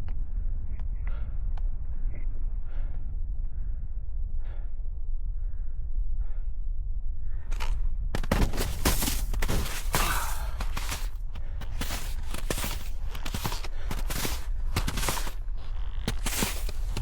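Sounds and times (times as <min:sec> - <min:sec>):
soft breaths: 0:08.6 - 0:17.0
snowboard scraping over hard snow: 0:11.7 - 0:15.4, 0:16.1 - 0:17.0.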